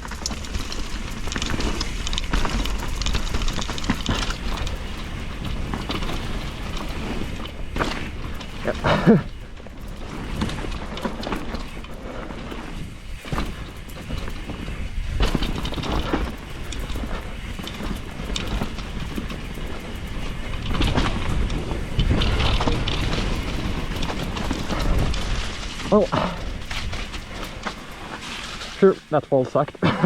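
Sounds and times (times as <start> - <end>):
bike clattering over rocks: 0.0 - 30.0
bike tyre rushing on trail: 0.0 - 30.0.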